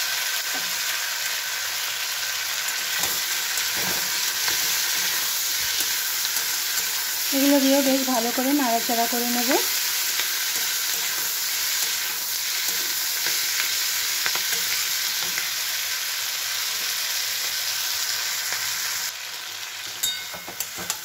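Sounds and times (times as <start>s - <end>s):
vegetables sizzling in hot oil: 0.0s - 21.0s
spatula scraping and tapping pan: 2.7s - 7.0s, 19.9s - 21.0s.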